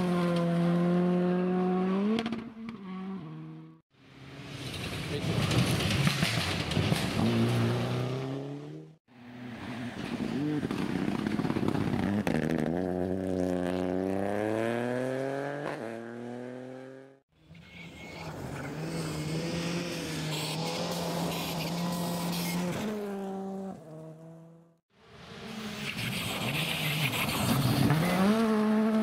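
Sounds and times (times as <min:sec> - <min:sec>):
rally car engine passing close: 0:04.4 - 0:17.2
distant car engine: 0:04.4 - 0:29.0.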